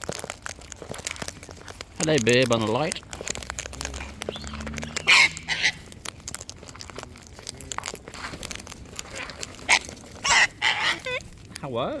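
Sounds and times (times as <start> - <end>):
cockatoos crunching seed: 0.0 - 12.0
harsh cockatoo bursts: 4.7 - 5.9, 9.1 - 11.2.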